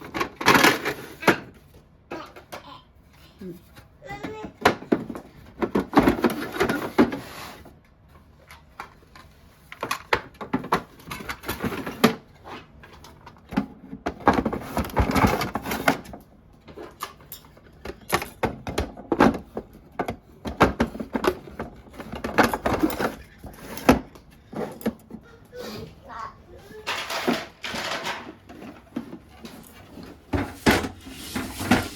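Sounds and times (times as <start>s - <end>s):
plastic cases clicking and knocking: 12.9s - 25.2s
rustling: 28.4s - 31.9s.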